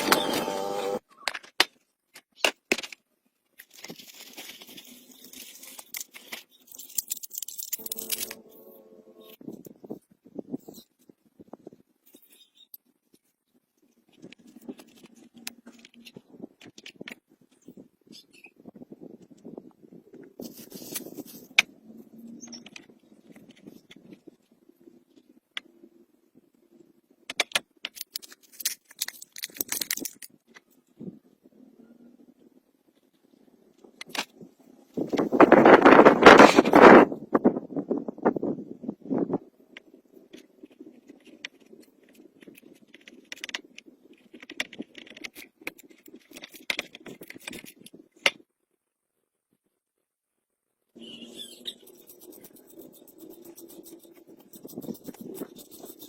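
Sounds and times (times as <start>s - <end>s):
small hard objects clinking: 3.7s - 8.4s.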